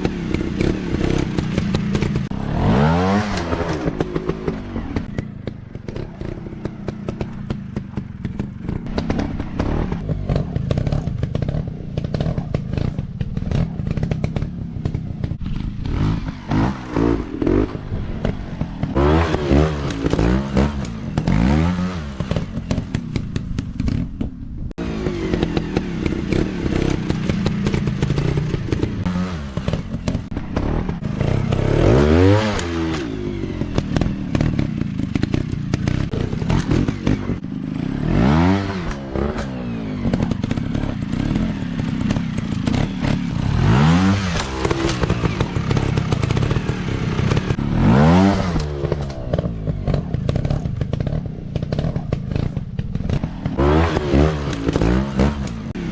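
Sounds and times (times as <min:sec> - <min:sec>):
dirt bike engine revving: 0:00.0 - 0:55.9
rattling clatter: 0:03.2 - 0:19.0, 0:38.6 - 0:53.6.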